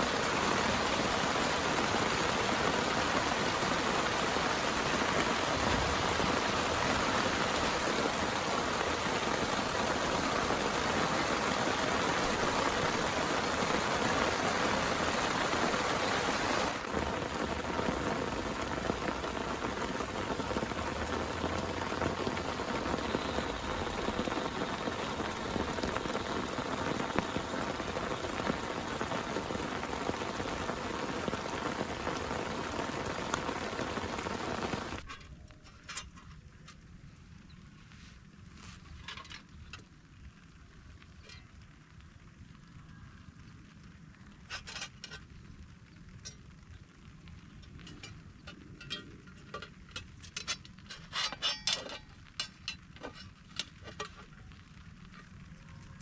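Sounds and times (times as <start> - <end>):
heavy rain falling: 0.0 - 35.1.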